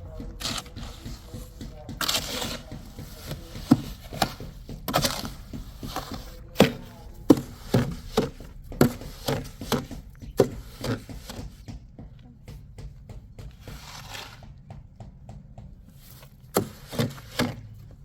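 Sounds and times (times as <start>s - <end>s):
wood being chopped: 0.0s - 11.9s.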